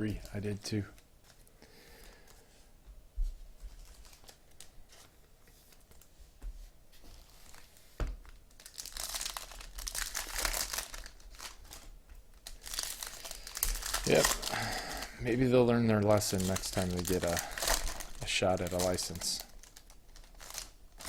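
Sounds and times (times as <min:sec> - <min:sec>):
card wrappers tearing and crinkling: 0:08.4 - 0:21.0.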